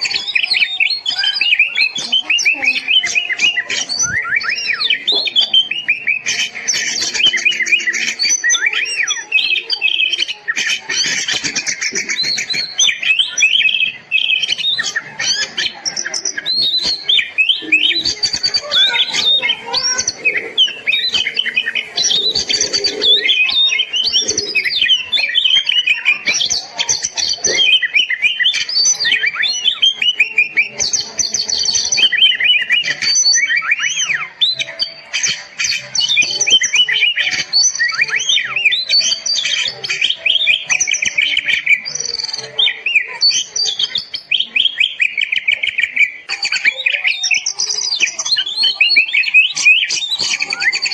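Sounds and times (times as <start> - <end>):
songbird singing whistles and trills: 0.0 - 50.9.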